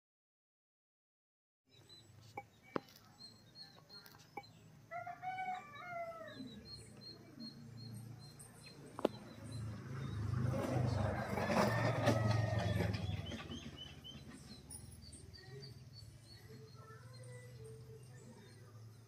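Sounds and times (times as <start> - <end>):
faint high chirp: 1.7 - 10.2, 13.2 - 19.0.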